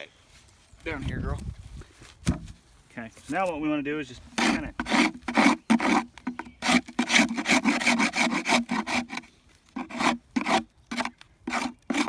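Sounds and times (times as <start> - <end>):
scraper rasping on wooden box: 4.3 - 12.0.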